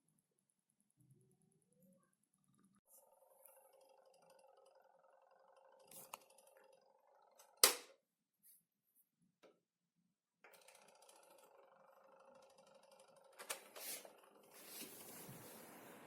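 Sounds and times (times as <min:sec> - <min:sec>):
fan motor humming: 0:10.5 - 0:16.0.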